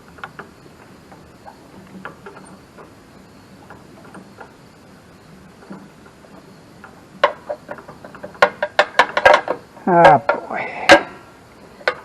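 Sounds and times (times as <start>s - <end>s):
hand tools tapping on metal: 5.6s - 12.0s.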